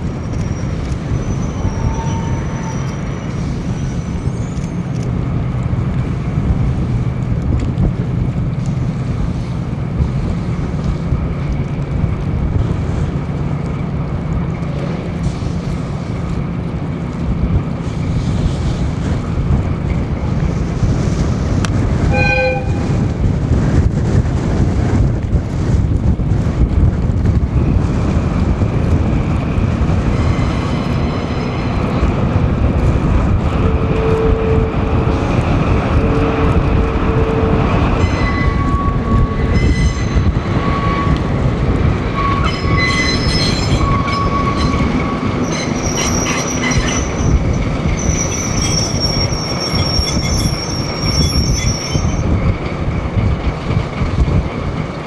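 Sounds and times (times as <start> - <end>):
train rumbling along track: 0.0 - 55.0
train wheels squealing: 0.1 - 5.1, 30.1 - 32.1, 37.3 - 41.5, 42.1 - 52.4.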